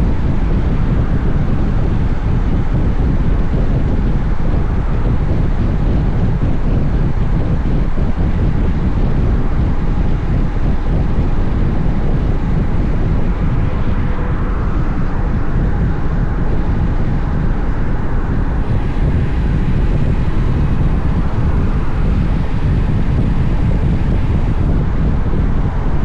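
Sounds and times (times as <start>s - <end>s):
motorcycle engine running: 0.0s - 25.8s
wind buffeting microphone: 0.0s - 26.0s
road noise: 8.9s - 26.0s.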